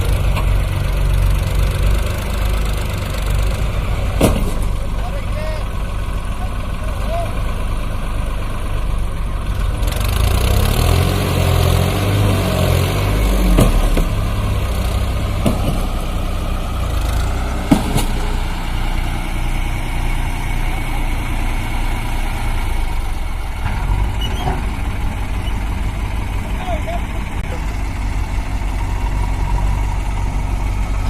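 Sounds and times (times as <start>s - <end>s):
heavy diesel engine running: 0.0s - 31.0s
sharp knocks: 17.6s - 18.3s.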